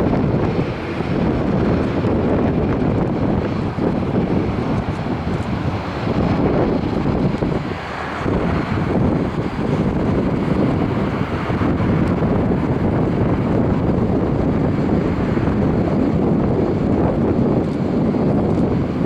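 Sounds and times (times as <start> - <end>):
jet engines rumbling: 0.0 - 19.0
wind buffeting microphone: 0.0 - 19.0.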